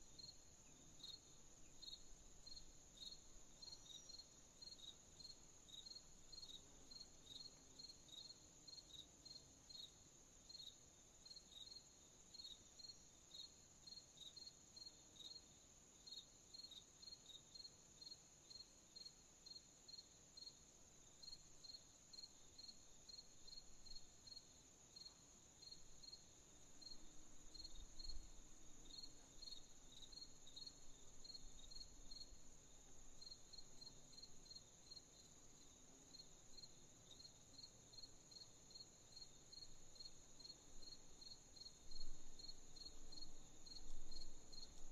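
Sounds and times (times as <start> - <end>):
crickets chirping: 0.0 - 44.9
high insect trill: 21.2 - 44.8.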